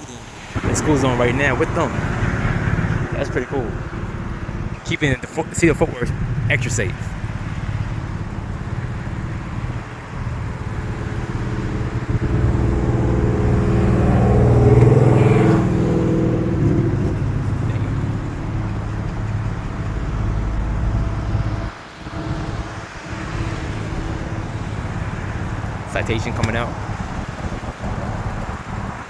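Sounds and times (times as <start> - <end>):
low rumble of traffic: 0.0 - 29.0
motor vehicle passing: 0.1 - 29.0.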